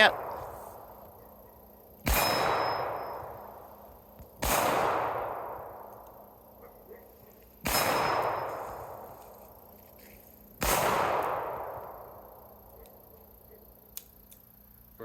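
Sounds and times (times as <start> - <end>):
revolver gunshots echoing: 0.0 - 1.4, 2.0 - 6.6, 7.6 - 9.2, 10.6 - 12.6.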